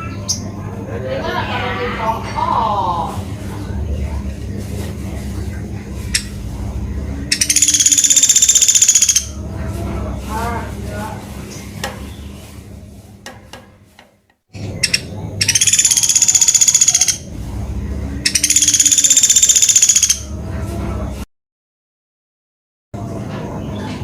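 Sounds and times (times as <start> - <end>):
woodpecker high rapid trills: 7.3 - 9.4, 14.6 - 17.4, 18.3 - 20.3.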